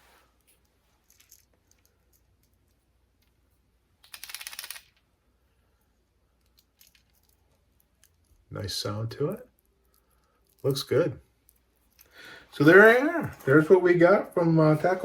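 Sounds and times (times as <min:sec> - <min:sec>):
fishing lure rattle clicking: 0:04.0 - 0:05.0.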